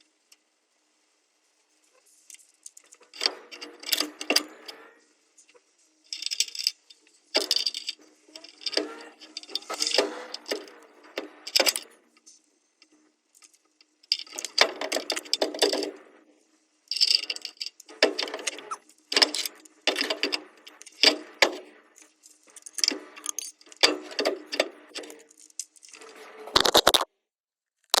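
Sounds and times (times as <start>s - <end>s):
metal tools clinking and rattling: 3.1s - 4.7s, 6.1s - 11.9s, 16.9s - 26.1s.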